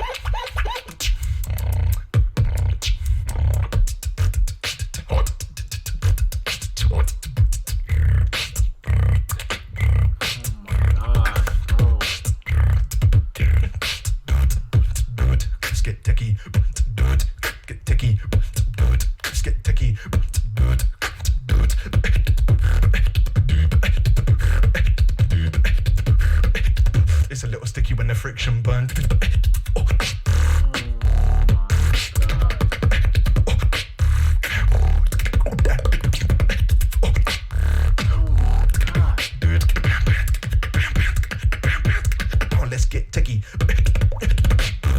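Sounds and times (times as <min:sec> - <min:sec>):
person beatboxing: 0:00.0 - 0:44.9.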